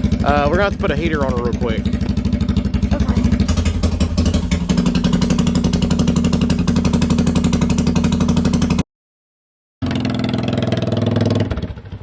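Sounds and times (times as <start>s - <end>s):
atv engine idling: 0.0s - 8.8s.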